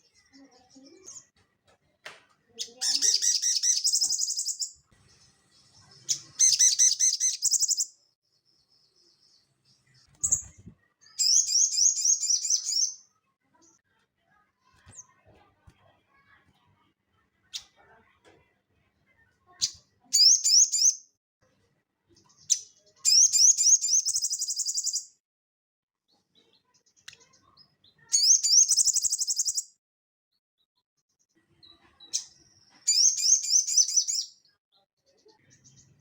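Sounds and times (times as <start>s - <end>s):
songbird chattering trills: 2.6s - 4.7s, 5.8s - 7.9s.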